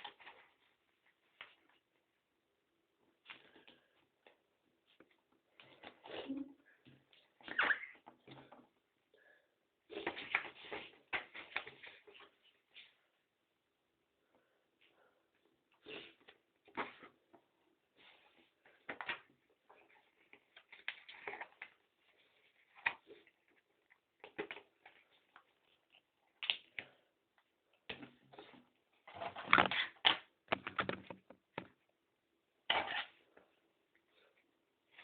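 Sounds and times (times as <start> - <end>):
clicks taps and rustles: 29.3 - 31.9.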